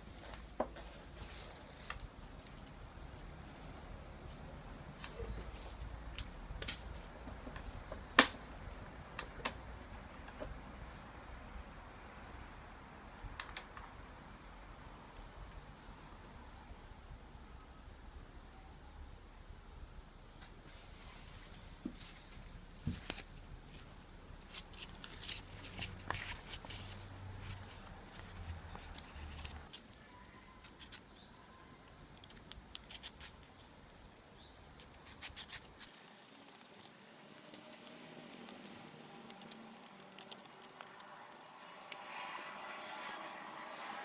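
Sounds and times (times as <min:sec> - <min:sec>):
hand tools clicking on metal: 0:35.8 - 0:43.3
hand tools scraping metal: 0:35.8 - 0:43.4.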